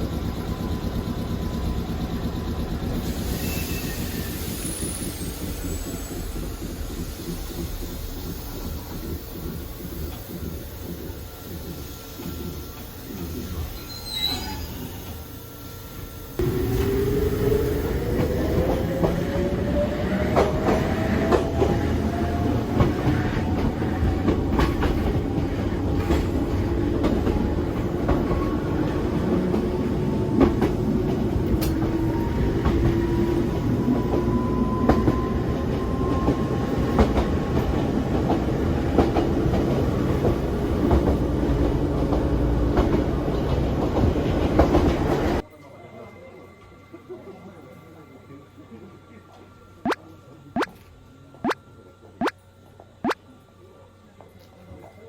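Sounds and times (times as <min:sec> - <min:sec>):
train motor whine: 0:00.0 - 0:45.4
train rumbling: 0:00.0 - 0:45.4.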